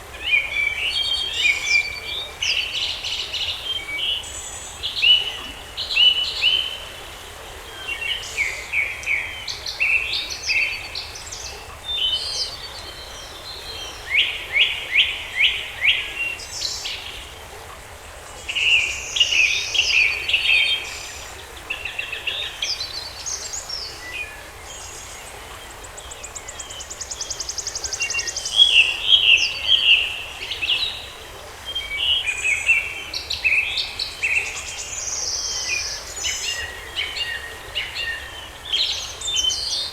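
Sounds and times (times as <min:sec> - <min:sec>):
faint background hiss: 0:00.0 - 0:39.9
songbirds singing and chirping: 0:18.2 - 0:39.9.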